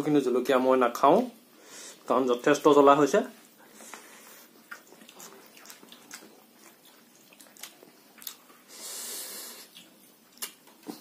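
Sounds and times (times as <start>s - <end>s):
person chewing food: 3.6s - 11.0s
wet mouth smacking and clicking: 4.7s - 8.4s, 9.7s - 11.0s.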